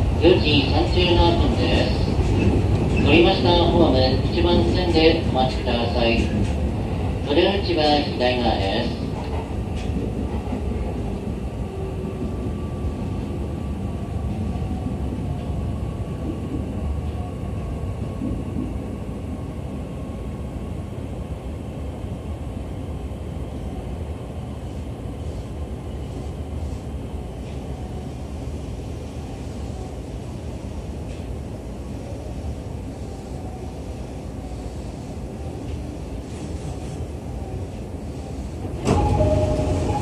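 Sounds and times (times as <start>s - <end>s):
train cabin rumble: 0.0s - 20.8s, 32.9s - 40.0s.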